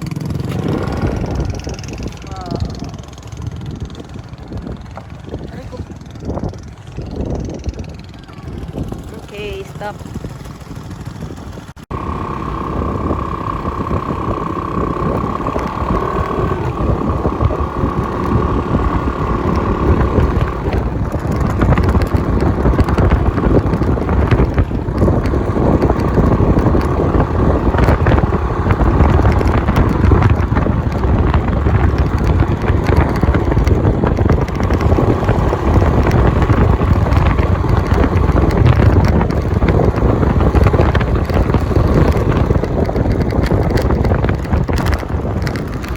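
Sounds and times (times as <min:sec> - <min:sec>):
scooter engine running: 0:00.0 - 0:45.9
wind buffeting microphone: 0:00.0 - 0:45.9
steady high whine: 0:11.9 - 0:20.2.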